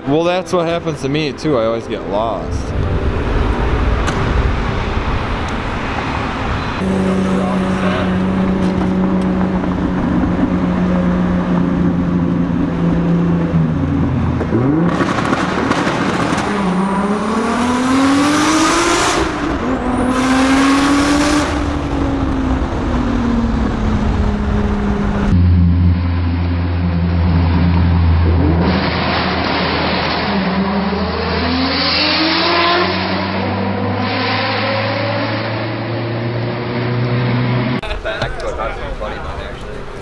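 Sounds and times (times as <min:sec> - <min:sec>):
steady engine drone: 0:00.6 - 0:14.8, 0:16.7 - 0:30.7
car engine accelerating: 0:02.0 - 0:40.0.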